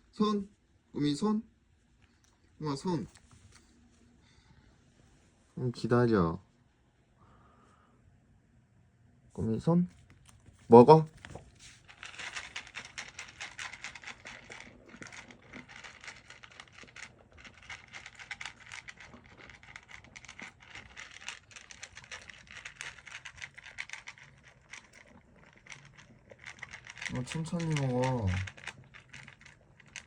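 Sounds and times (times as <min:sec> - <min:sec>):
puppy crunching food: 0:09.9 - 0:30.0.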